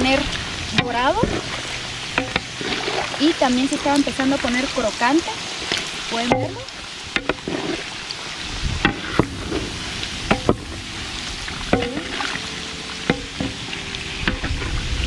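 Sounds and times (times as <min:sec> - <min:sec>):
pork rinds sizzling in lard: 0:00.0 - 0:15.0
paddle knocking on metal pot: 0:02.1 - 0:02.5, 0:06.1 - 0:07.6, 0:08.8 - 0:09.5, 0:10.3 - 0:10.8, 0:11.6 - 0:12.3, 0:13.0 - 0:13.6, 0:14.2 - 0:14.7.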